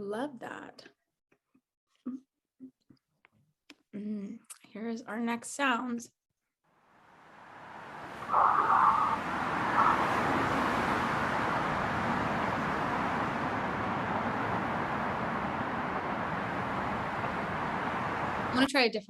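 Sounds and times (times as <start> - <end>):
road traffic noise: 6.8 - 18.7.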